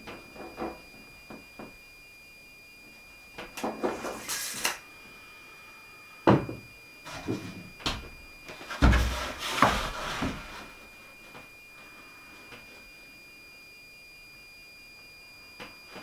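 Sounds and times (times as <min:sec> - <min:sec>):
wooden boards scraping: 0:07.1 - 0:10.8.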